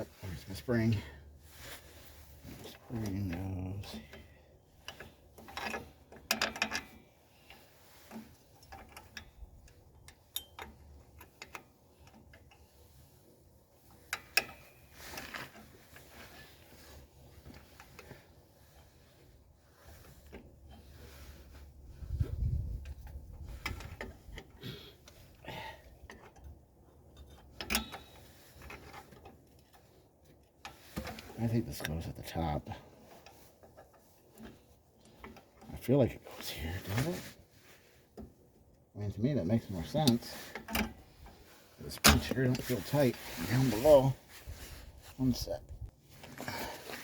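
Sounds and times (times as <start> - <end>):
metal clicks of brake hardware: 4.0 - 12.7, 25.8 - 32.0.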